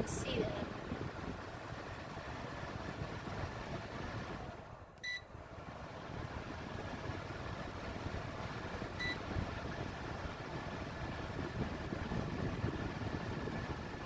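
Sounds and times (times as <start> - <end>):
electric fan whooshing: 0.0 - 14.0
short electronic beep: 5.0 - 5.2.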